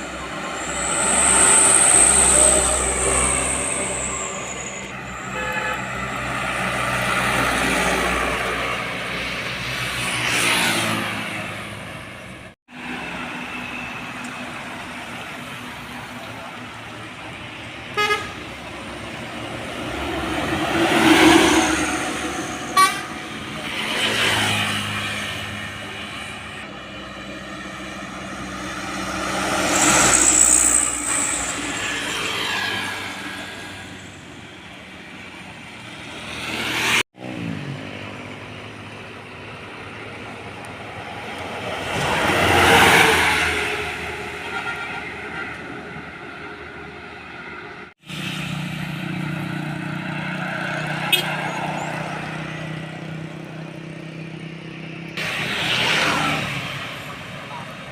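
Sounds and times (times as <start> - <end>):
heavy trucks passing: 0.0 - 57.9
short horn toots: 5.1 - 6.0.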